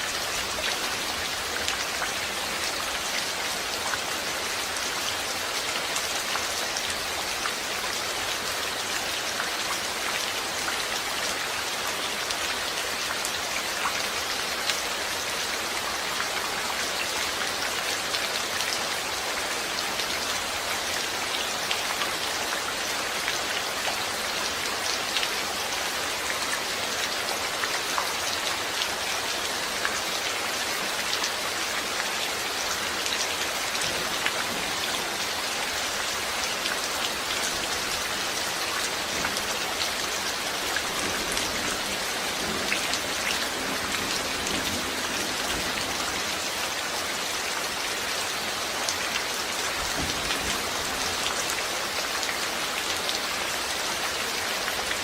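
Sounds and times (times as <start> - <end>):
steady rain falling: 0.0 - 55.0
raindrops ticking on a surface: 48.7 - 55.0.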